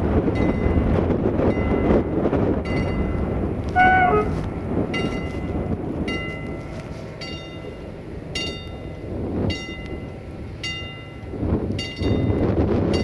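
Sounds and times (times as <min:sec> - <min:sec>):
train locomotive rumble: 0:00.0 - 0:13.0
short high tone: 0:03.8 - 0:04.5.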